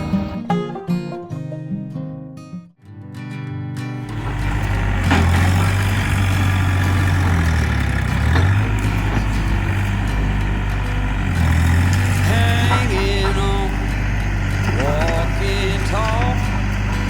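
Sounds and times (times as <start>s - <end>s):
tractor engine running: 4.1s - 17.0s.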